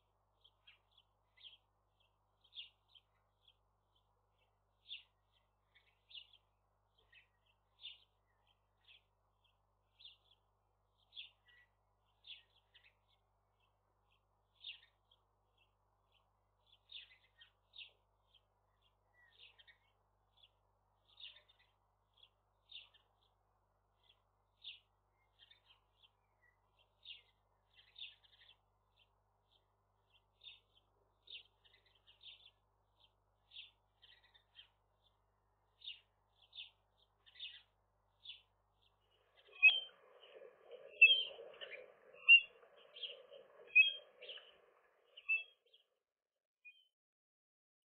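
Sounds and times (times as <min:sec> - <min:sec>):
bird chirping: 0:11.0 - 0:46.0, 0:46.6 - 0:47.0
bird calls: 0:35.8 - 0:45.8.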